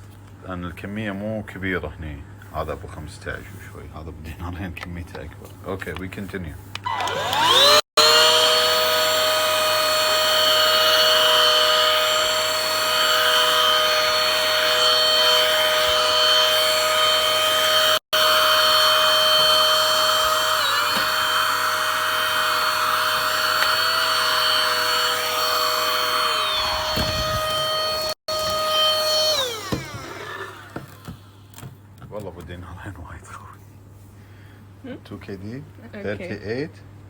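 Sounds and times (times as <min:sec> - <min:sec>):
handheld vacuum cleaners whining: 0:06.8 - 0:31.7.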